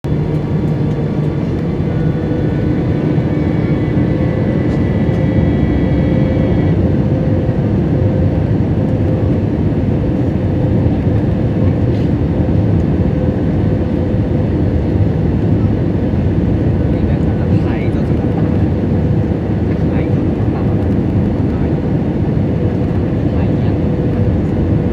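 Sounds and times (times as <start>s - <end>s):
aircraft engines rumbling: 0.0s - 24.9s
steady tone: 1.8s - 6.9s.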